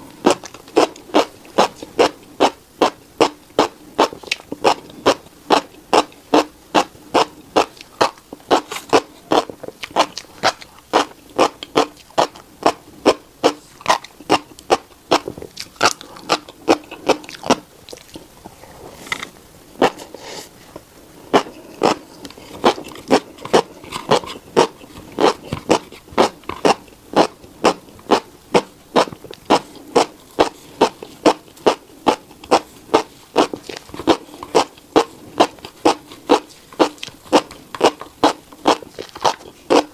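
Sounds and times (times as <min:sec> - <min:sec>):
chewing crunchy seeds: 0:00.0 - 0:20.2, 0:21.3 - 0:39.9.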